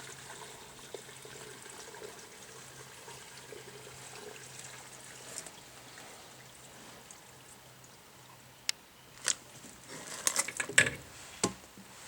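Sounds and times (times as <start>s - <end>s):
gasoline pouring into tank: 0.0s - 6.5s.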